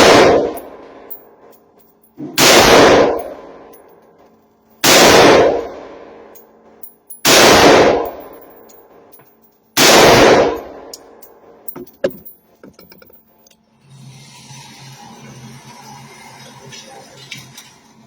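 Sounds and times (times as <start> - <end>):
gunshots ringing out: 0.0 - 1.1, 2.2 - 3.7, 4.8 - 6.3, 7.2 - 8.4, 9.8 - 11.2
low steady hum: 0.0 - 13.6
light metal clinks: 8.0 - 9.8, 10.9 - 13.6.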